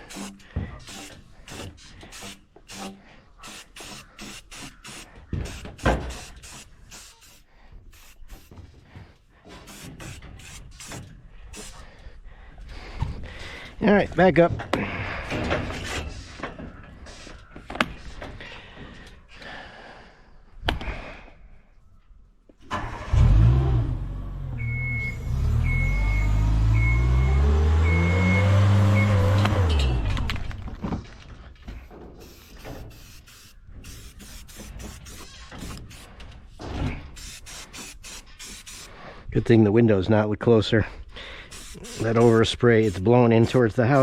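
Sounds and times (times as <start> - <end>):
work lift motor revving: 22.7 - 30.6
motion alarm beeps: 24.6 - 29.4.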